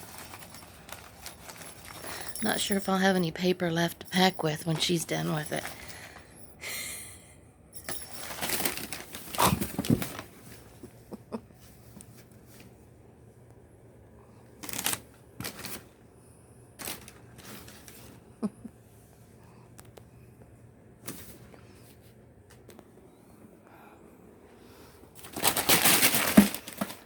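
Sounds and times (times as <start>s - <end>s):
packing paper rustling: 0.0s - 3.9s, 7.9s - 10.8s, 14.6s - 16.0s, 16.8s - 18.2s, 25.2s - 27.0s.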